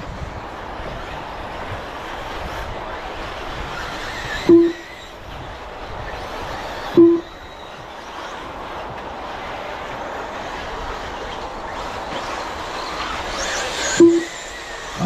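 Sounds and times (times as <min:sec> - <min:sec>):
rc cars motor and tyre noise: 0:00.0 - 0:15.0
loud electronic beeps: 0:04.5 - 0:04.9, 0:07.0 - 0:07.4, 0:14.0 - 0:14.4.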